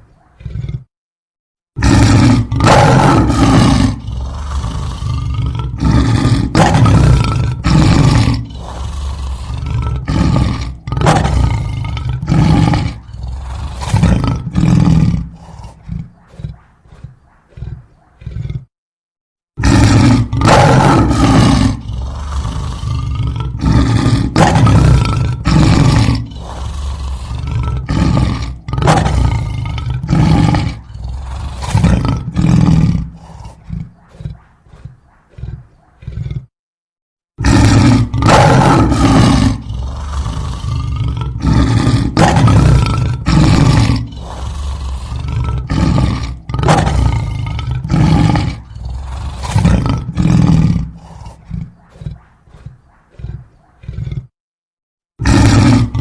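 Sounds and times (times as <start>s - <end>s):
big cat roaring: 0.0s - 0.9s, 1.8s - 18.7s, 19.6s - 36.5s, 37.4s - 54.4s, 55.2s - 56.0s.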